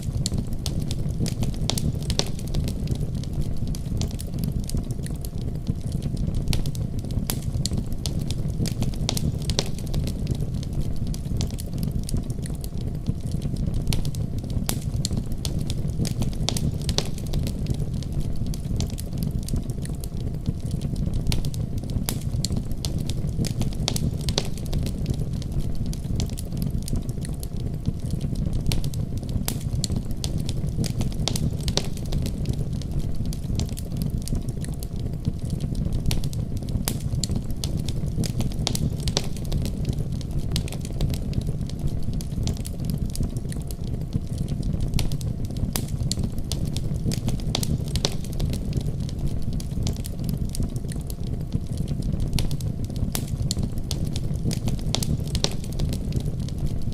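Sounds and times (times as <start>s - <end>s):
fire crackling and popping: 0.0s - 56.9s
fire flames burning: 0.0s - 56.9s.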